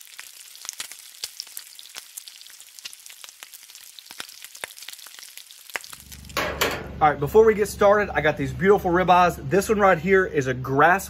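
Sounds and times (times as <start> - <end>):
food sizzling on a griddle: 0.0 - 6.5
sharp pops and crackles: 0.0 - 6.5.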